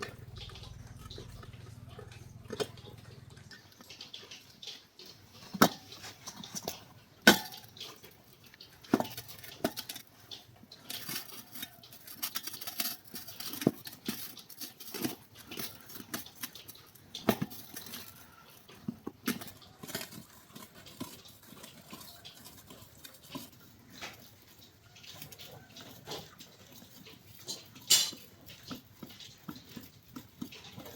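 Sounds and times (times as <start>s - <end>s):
metal tools clinking: 27.4s - 28.3s.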